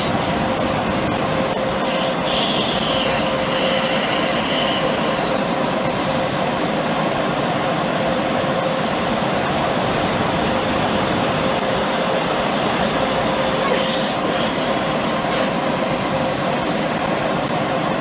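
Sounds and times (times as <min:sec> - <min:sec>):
car wash spraying and machinery: 0:00.0 - 0:18.0
constant hum: 0:00.0 - 0:18.0
high squeal: 0:01.6 - 0:05.6, 0:11.6 - 0:17.0.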